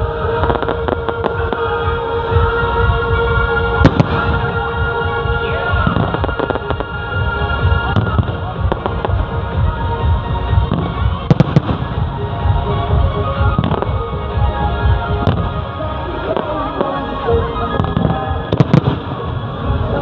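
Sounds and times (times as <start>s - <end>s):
music: 0.0s - 20.0s
fireworks cracking: 3.8s - 9.8s, 10.6s - 14.0s, 17.7s - 20.0s
fireworks booming: 3.8s - 14.1s, 15.1s - 15.7s, 17.7s - 19.6s.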